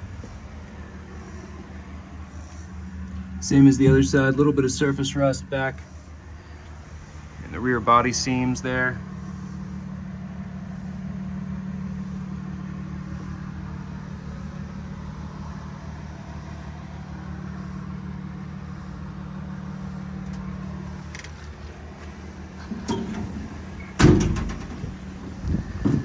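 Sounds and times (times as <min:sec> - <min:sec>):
motor humming: 0:00.0 - 0:26.0.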